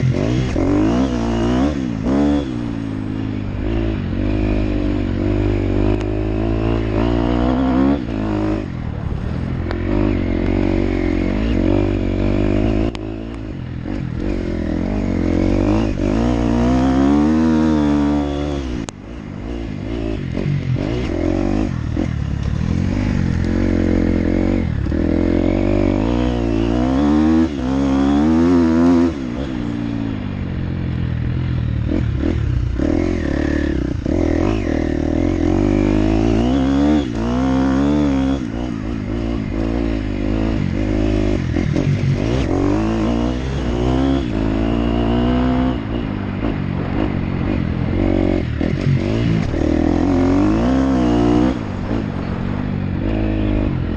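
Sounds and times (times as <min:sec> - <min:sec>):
motocross bike engine revving: 0:00.0 - 0:30.6, 0:31.2 - 0:53.9.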